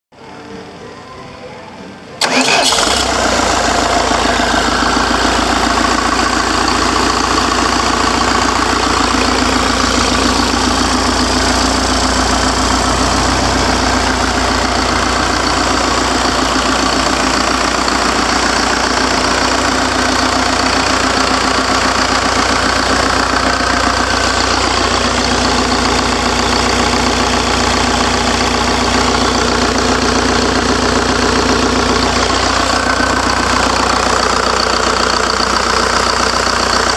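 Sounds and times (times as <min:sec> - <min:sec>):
diesel engine idling: 0:02.2 - 0:36.9.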